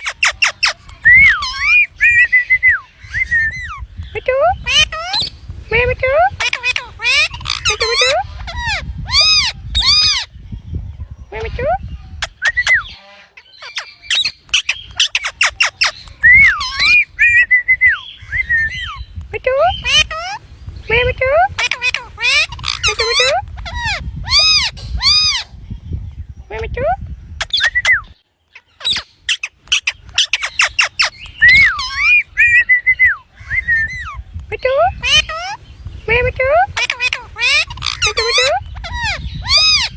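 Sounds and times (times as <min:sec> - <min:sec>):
parrot whistling and squawking: 0:00.0 - 0:03.8, 0:04.5 - 0:05.4, 0:06.3 - 0:10.3, 0:12.2 - 0:13.0, 0:13.6 - 0:19.1, 0:19.7 - 0:20.5, 0:21.4 - 0:25.5, 0:27.4 - 0:28.2, 0:28.8 - 0:34.2, 0:34.9 - 0:35.6, 0:36.6 - 0:39.9.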